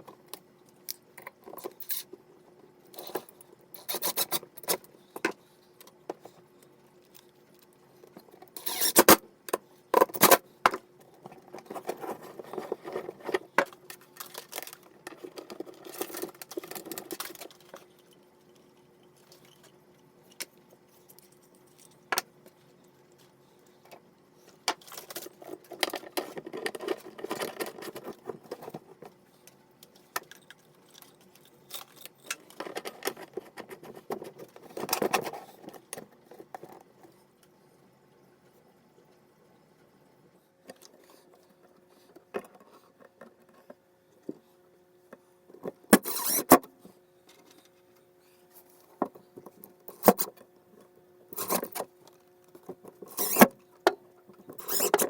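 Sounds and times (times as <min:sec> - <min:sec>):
faint steady hum: 0:00.0 - 0:55.0
scraping and rustling: 0:11.2 - 0:18.1, 0:24.4 - 0:29.2, 0:51.3 - 0:51.9, 0:52.6 - 0:53.6, 0:54.3 - 0:55.0.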